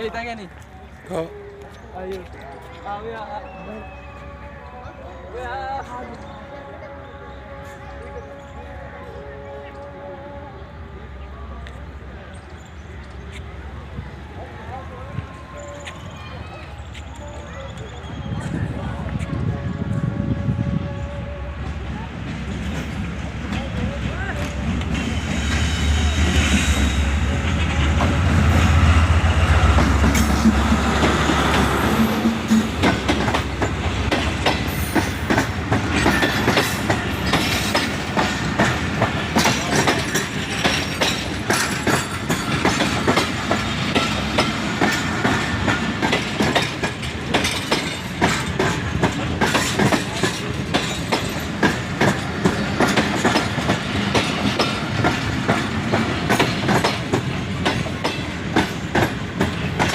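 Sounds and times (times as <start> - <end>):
train wheels clattering on rails: 22.2 - 59.9.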